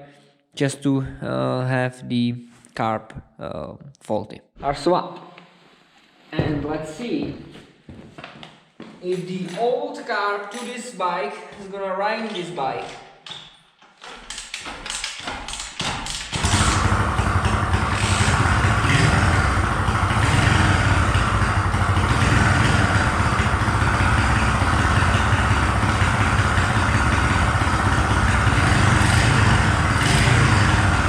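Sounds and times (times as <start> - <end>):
small motorbike engine running: 15.5 - 31.0.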